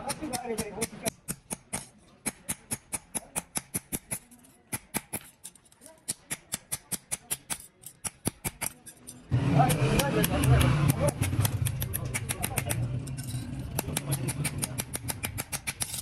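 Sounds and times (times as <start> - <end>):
rapid sharp taps: 9.6 - 12.9, 13.8 - 16.0.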